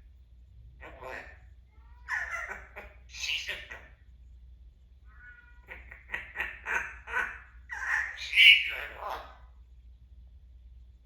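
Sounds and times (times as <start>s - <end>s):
parrot calling and chattering: 0.8s - 4.1s, 5.1s - 9.5s.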